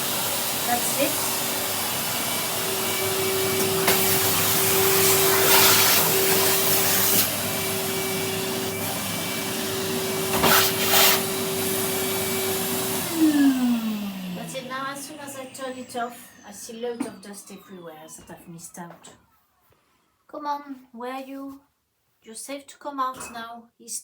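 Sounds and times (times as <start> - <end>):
vacuum cleaner running: 0.0 - 18.8.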